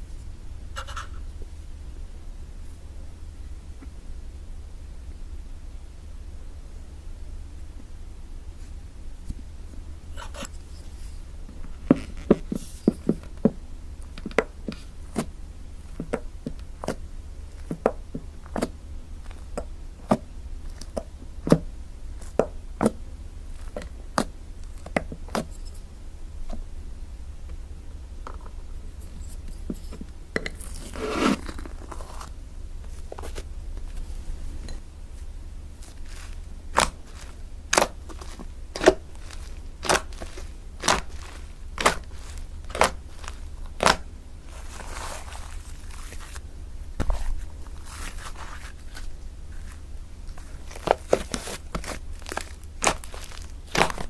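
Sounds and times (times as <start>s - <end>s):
slime scraping squish: 0.8s - 1.2s, 29.2s - 32.4s, 35.8s - 46.4s, 47.0s - 54.0s.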